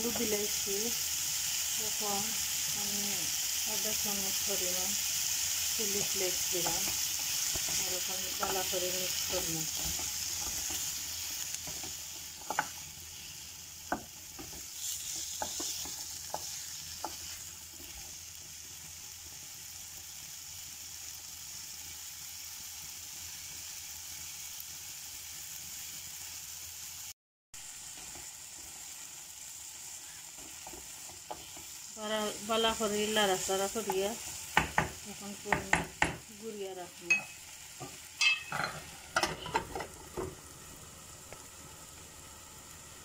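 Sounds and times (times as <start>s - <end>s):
potatoes and onions sizzling: 0.0s - 43.0s
wooden spatula knocking pan: 33.8s - 36.3s.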